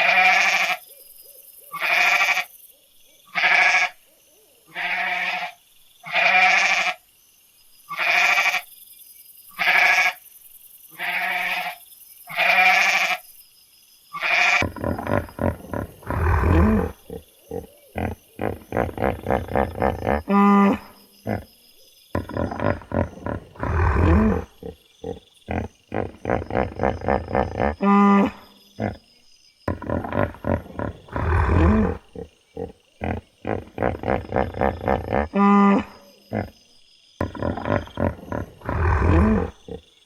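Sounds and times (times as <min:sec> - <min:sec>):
animal bleating: 0:00.0 - 0:00.8, 0:01.8 - 0:02.5, 0:03.3 - 0:04.0, 0:04.7 - 0:07.0, 0:07.9 - 0:08.6, 0:09.6 - 0:10.2, 0:11.0 - 0:13.2, 0:14.2 - 0:21.4, 0:22.2 - 0:29.0, 0:29.7 - 0:36.5, 0:37.2 - 0:39.8
low rough animal sound: 0:14.2 - 0:21.6, 0:22.2 - 0:29.1, 0:29.7 - 0:39.9.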